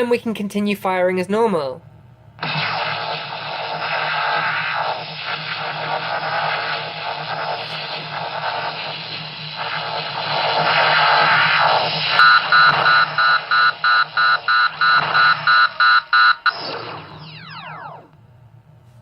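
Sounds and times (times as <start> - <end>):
low hum: 1.9 - 19.0
hissing blast sound effect: 2.4 - 18.1.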